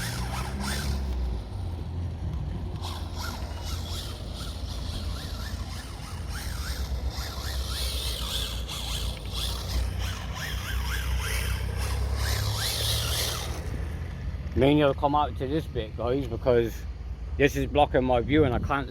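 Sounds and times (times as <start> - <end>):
toy car motor whining: 0.0 - 14.1.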